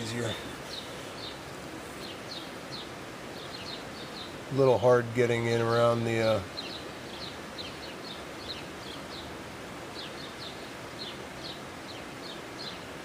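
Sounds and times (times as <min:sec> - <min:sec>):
small bird chirping: 0:00.0 - 0:04.4, 0:06.4 - 0:13.0
steady outdoor hiss: 0:00.0 - 0:13.0.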